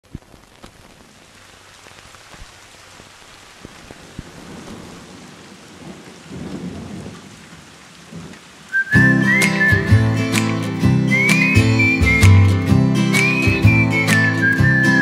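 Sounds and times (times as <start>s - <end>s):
steady rain falling: 0.0s - 15.0s
low thunder rumble: 4.0s - 9.0s
drops ticking sharply: 8.9s - 15.0s.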